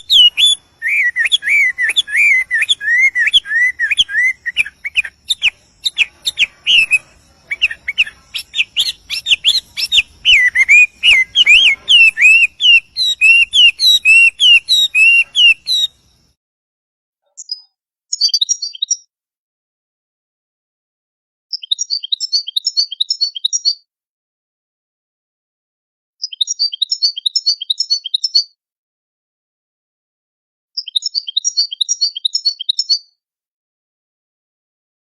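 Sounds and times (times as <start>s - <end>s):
songbird singing: 0.0s - 16.3s, 17.4s - 19.0s, 21.5s - 23.8s, 26.2s - 28.5s, 30.8s - 33.1s.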